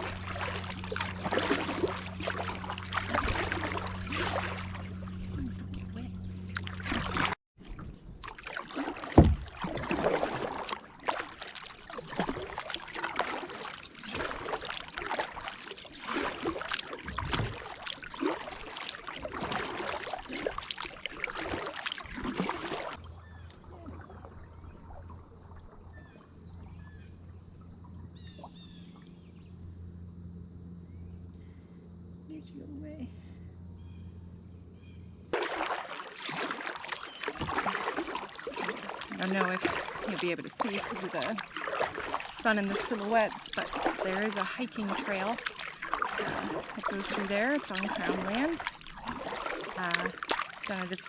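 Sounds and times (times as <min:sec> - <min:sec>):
low steady hum: 0:00.0 - 0:07.9, 0:22.4 - 0:51.0
paddle splashing in water: 0:00.0 - 0:29.3, 0:35.3 - 0:51.0
faint bird chirps: 0:32.2 - 0:35.1.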